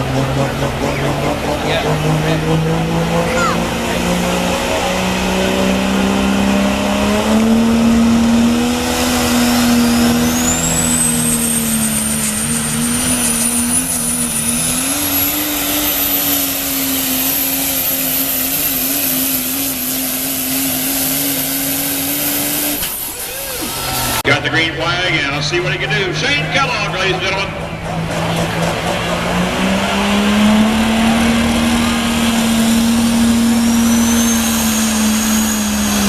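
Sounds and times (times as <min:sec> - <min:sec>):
diesel truck engine under load: 0:00.0 - 0:36.0
turbo whistle: 0:33.4 - 0:36.0.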